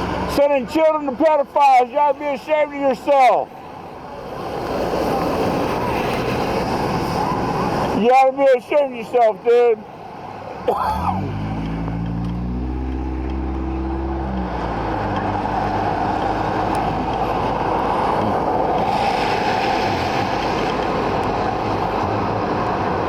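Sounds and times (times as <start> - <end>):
car engine accelerating: 10.6 - 23.0
steady rushing noise: 11.6 - 23.0.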